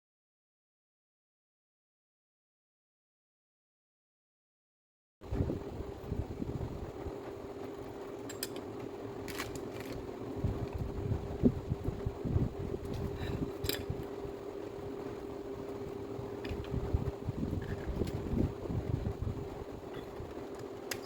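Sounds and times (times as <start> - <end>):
small electric motor humming: 5.3 - 21.0.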